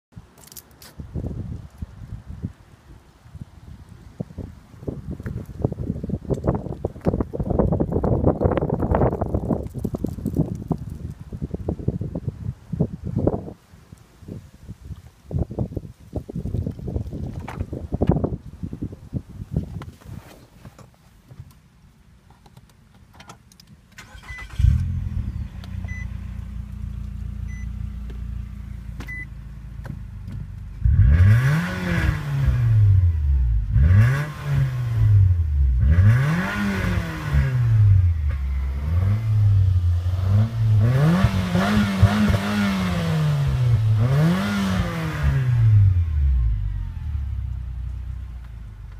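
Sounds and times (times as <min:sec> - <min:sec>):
car engine idling: 0:23.8 - 0:31.0
short beeps: 0:25.9 - 0:26.1, 0:27.5 - 0:27.7, 0:29.1 - 0:29.3
car engine revving: 0:30.8 - 0:48.0.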